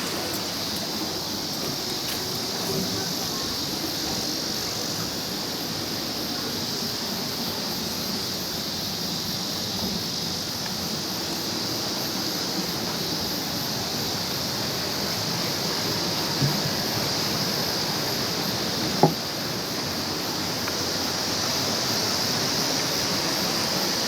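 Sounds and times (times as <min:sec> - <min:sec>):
stream flowing over rocks: 0:00.0 - 0:02.9.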